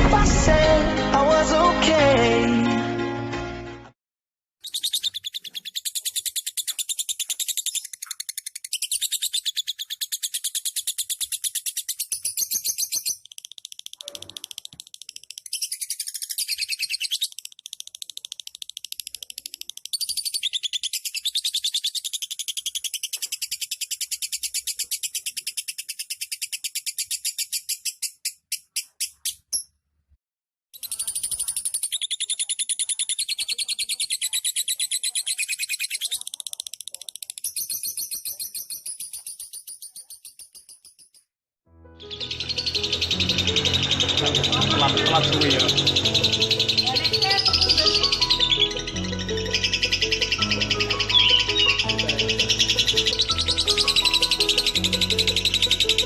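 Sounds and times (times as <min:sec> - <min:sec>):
lovebird chattering: 0:04.6 - 0:29.7, 0:30.8 - 0:41.3, 0:42.2 - 0:56.0.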